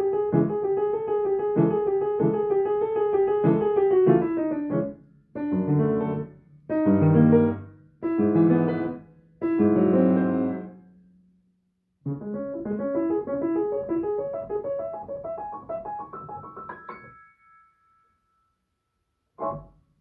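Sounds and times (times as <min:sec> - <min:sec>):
piano chords and runs: 0:00.0 - 0:10.7.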